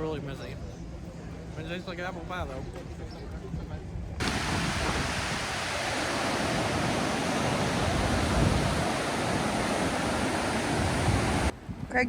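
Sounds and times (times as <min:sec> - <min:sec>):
rushing water roar: 0:04.2 - 0:11.9.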